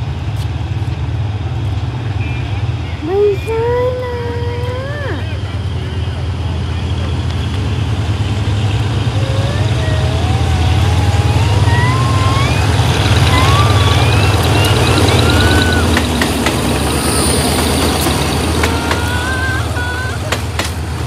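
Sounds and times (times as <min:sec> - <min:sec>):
train engine hum: 0:00.0 - 0:21.0
high wavering squeals: 0:07.8 - 0:21.0.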